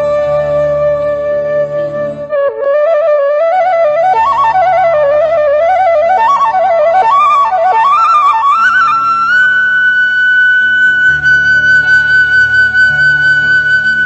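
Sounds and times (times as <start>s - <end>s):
low steady drone: 0.0s - 2.4s
bamboo flute melody: 0.0s - 14.0s.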